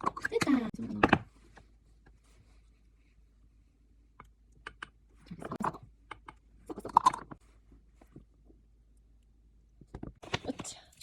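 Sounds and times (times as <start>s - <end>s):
small objects clicking and tapping: 4.1s - 7.4s.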